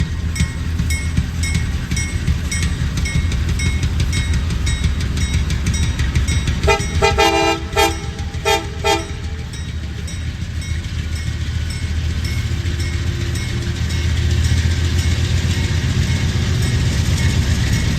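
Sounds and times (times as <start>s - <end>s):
steady low rumble: 0.0s - 17.9s
locomotive horn blasts: 6.3s - 10.6s.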